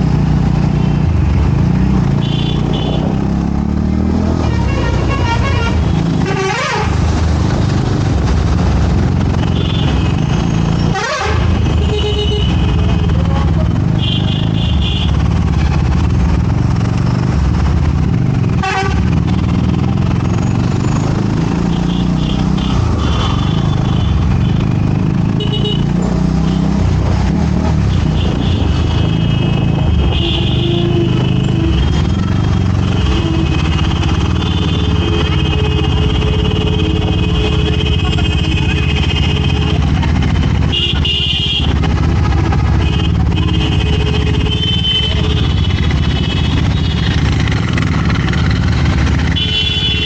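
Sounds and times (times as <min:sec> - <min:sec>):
engine and road rumble: 0:00.0 - 0:50.0
vehicle horns honking: 0:02.2 - 0:03.2, 0:04.4 - 0:07.1, 0:09.4 - 0:15.2, 0:18.6 - 0:19.2, 0:25.4 - 0:26.6, 0:27.9 - 0:32.2, 0:32.8 - 0:40.0, 0:40.6 - 0:41.8, 0:42.7 - 0:47.3, 0:49.2 - 0:50.0.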